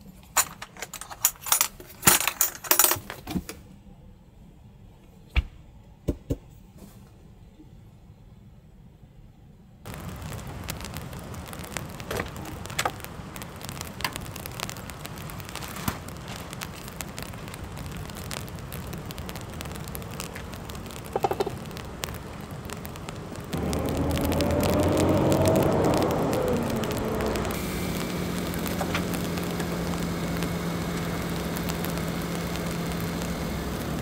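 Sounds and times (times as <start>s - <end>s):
heavy raindrops ticking: 9.9s - 34.0s
rain falling on a vehicle: 9.9s - 34.0s
running sound with rising tone: 16.3s - 34.0s.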